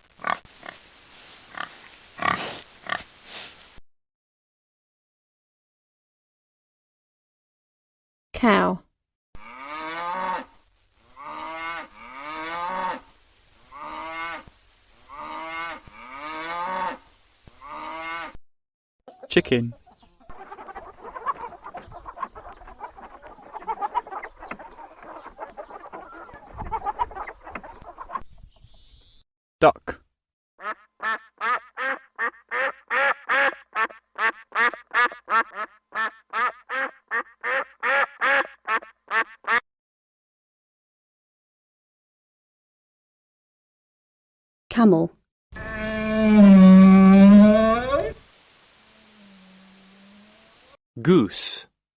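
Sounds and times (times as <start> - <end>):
cow mooing: 9.4 - 10.5, 11.2 - 13.0, 17.6 - 18.4, 45.6 - 48.2
duck quacking: 20.2 - 28.2, 30.6 - 39.6.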